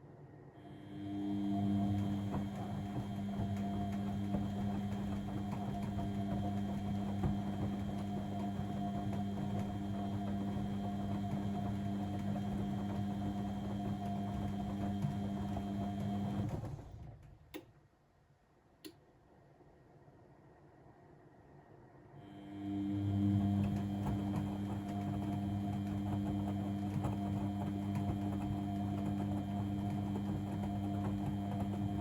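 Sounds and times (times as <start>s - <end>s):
washing machine motor humming: 0.6s - 17.6s, 22.2s - 32.0s.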